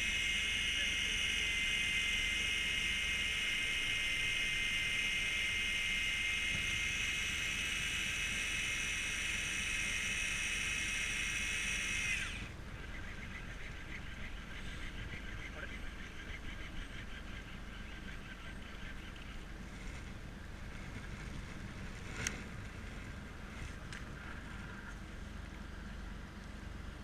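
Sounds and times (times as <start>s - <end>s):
electric fishing reel motor whining: 0.0s - 19.3s.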